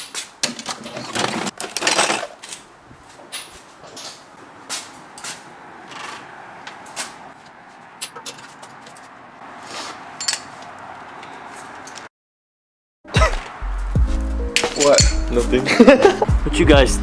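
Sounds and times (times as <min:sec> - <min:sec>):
metallic clinks of hand tools: 0:14.6 - 0:15.3.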